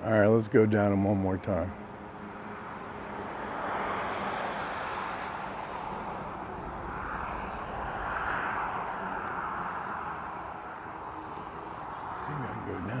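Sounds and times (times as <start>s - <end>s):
rushing noise over wet ground: 3.2s - 13.0s.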